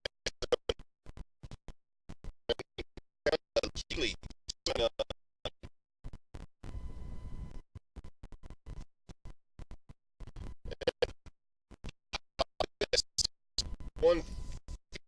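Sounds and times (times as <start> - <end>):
fragments of voice: 2.5 - 5.2, 10.7 - 11.1, 12.1 - 13.3, 14.0 - 14.3.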